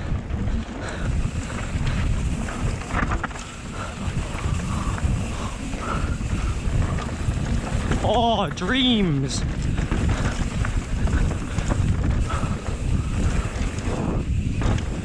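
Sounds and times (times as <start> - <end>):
bike tyres rumbling on rough ground: 0.0 - 15.0
wind buffeting microphone: 0.0 - 15.0.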